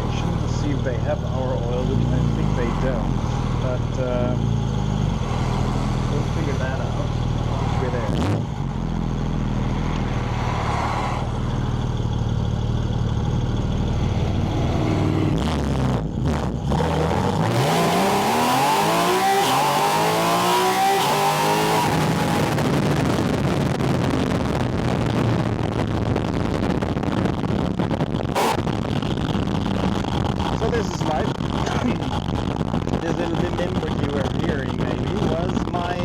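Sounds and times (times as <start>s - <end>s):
car engine accelerating: 0.0s - 36.0s
engine intake rush: 28.3s - 36.0s.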